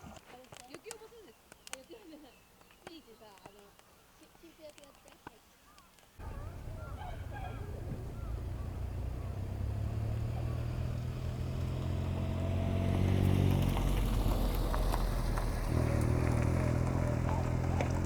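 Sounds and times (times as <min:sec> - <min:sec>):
light clicks: 0:00.1 - 0:03.9, 0:04.6 - 0:07.0
vehicle engine droning hum: 0:06.2 - 0:18.0.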